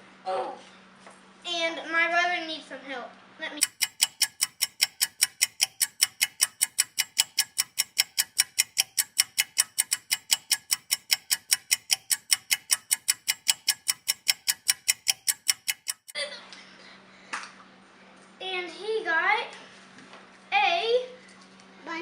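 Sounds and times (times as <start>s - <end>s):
rapid clock-like ticking: 3.6s - 16.2s.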